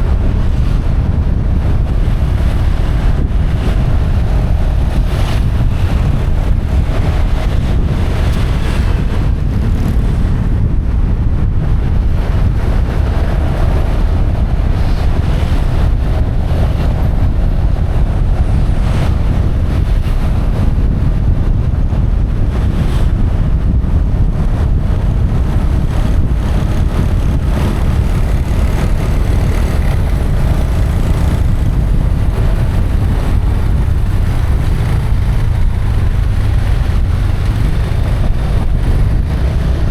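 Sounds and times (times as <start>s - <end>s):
wind buffeting microphone: 0.0s - 39.9s
motorbike engine running: 12.2s - 39.9s.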